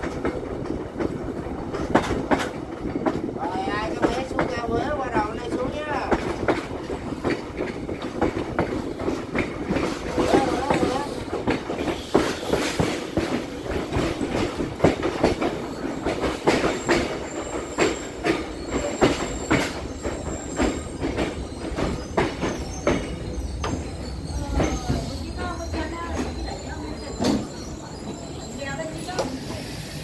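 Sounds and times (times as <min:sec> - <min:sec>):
train rumble: 0:00.0 - 0:30.0
train wheels clacking: 0:00.0 - 0:30.0
faint wheel squeal: 0:16.8 - 0:30.0.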